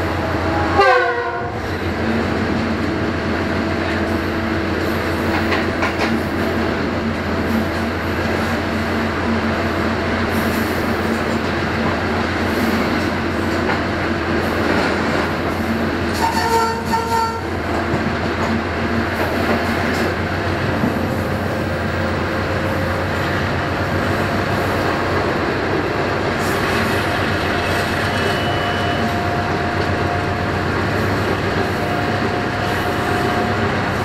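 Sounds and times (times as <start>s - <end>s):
wheels rumbling on rails: 0.0s - 34.0s
locomotive engine drone: 16.8s - 34.0s.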